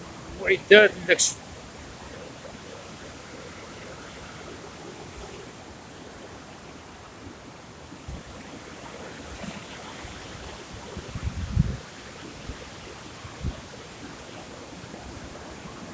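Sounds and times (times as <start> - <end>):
sea surf: 0.0 - 15.9
wind buffeting microphone: 7.1 - 15.9.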